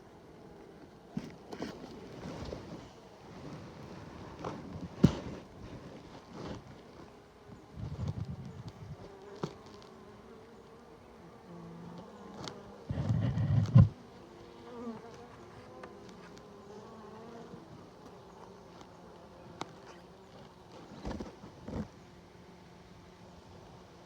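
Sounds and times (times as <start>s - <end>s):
honeybees buzzing: 0.0s - 24.0s
rustling against microphone: 1.2s - 9.9s, 12.4s - 14.0s.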